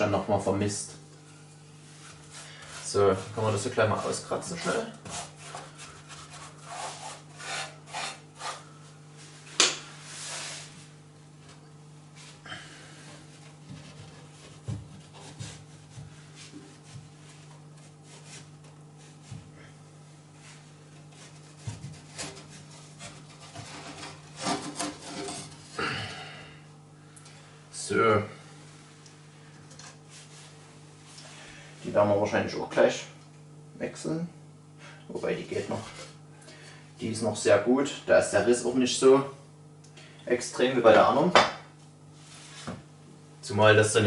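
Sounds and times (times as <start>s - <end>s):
brush scraping ash in fireplace: 1.8s - 8.7s, 20.5s - 25.8s.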